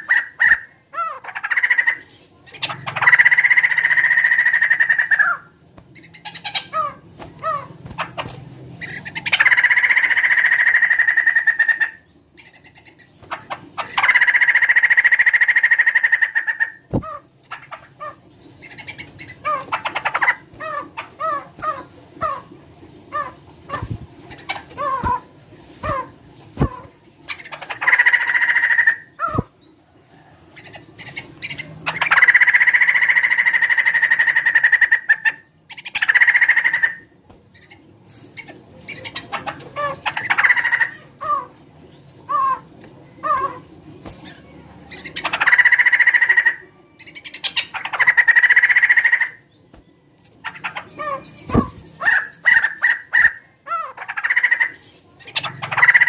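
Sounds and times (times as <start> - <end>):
bird harsh drawn-out calls: 0.0 - 12.6, 13.8 - 22.5, 23.1 - 29.5, 42.3 - 49.5.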